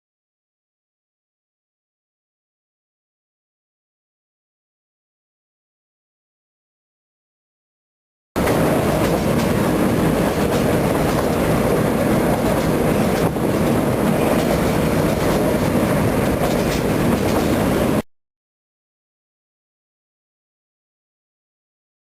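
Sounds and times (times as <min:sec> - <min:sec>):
train rolling rattle: 0:08.4 - 0:18.0.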